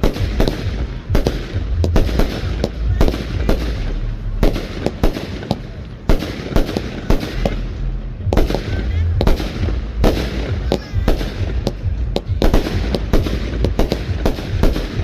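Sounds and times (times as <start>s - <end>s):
continuous rumble: 0.0s - 15.0s
fireworks bangs: 0.0s - 15.0s.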